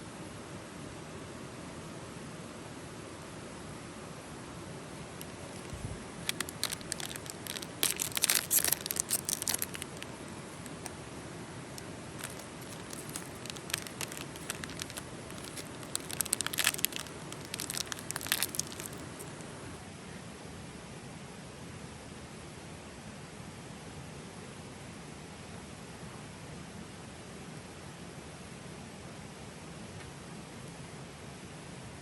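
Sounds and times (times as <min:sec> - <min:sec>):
wrapping material crinkling: 0:05.2 - 0:11.0, 0:11.8 - 0:19.5.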